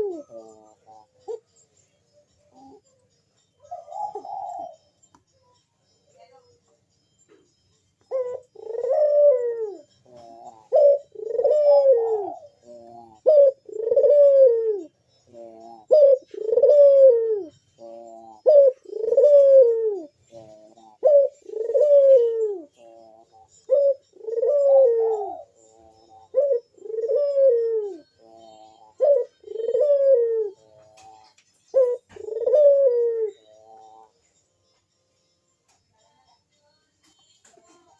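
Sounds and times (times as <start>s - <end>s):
dove cooing: 0.0s - 5.1s, 8.0s - 34.3s.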